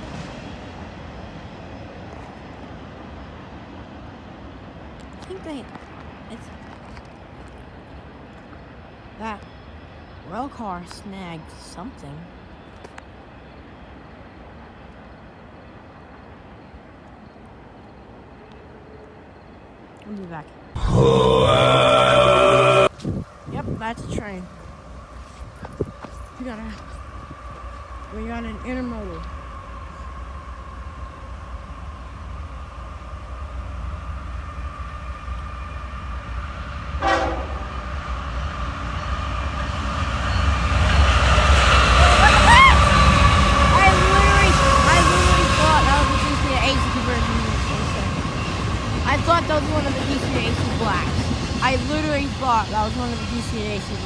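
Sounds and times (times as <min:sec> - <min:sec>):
train cars rolling on rails: 0:00.0 - 0:20.8, 0:21.4 - 0:54.0
locomotive engine rumble: 0:20.7 - 0:54.0
steady tone: 0:20.8 - 0:22.9.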